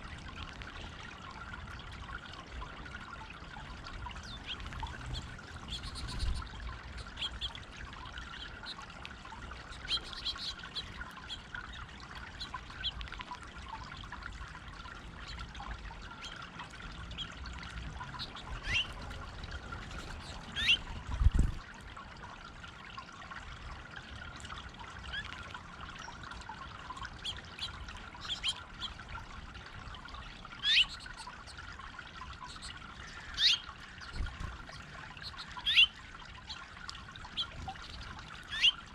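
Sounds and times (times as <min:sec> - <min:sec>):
water trickling in stone fountain: 0:00.0 - 0:38.9
bird chirps: 0:18.2 - 0:18.9, 0:20.2 - 0:20.8, 0:30.6 - 0:31.3, 0:32.4 - 0:34.2, 0:35.2 - 0:36.6, 0:37.4 - 0:38.8.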